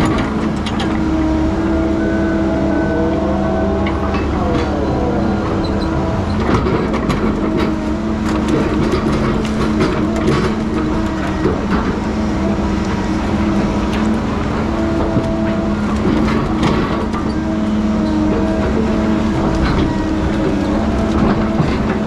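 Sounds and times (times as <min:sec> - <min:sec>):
heavy diesel engine running: 0:00.0 - 0:22.0
metal clanks and knocks: 0:03.8 - 0:14.3.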